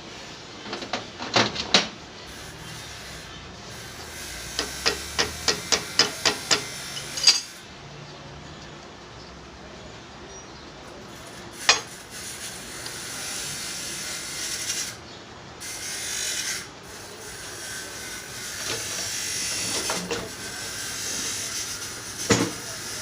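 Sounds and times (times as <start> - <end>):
metal scraping and rubbing: 2.3 - 7.6, 18.0 - 23.0.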